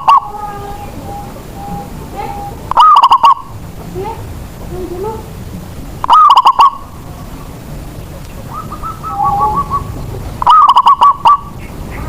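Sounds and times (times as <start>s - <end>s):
dove cooing: 0.0s - 3.6s, 6.0s - 7.0s, 8.0s - 12.0s.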